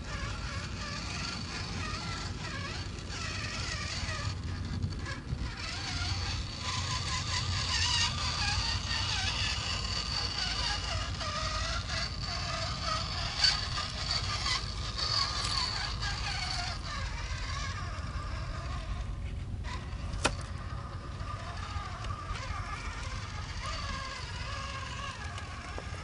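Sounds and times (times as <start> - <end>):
model truck motor whining: 0.0 - 26.0.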